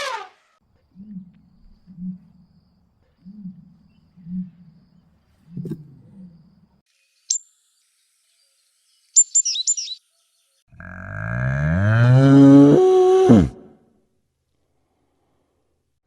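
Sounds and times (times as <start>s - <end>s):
high bird chirps: 7.2s - 7.6s, 8.4s - 10.0s
faint low growl: 10.7s - 13.7s
long low animal call: 10.7s - 13.7s.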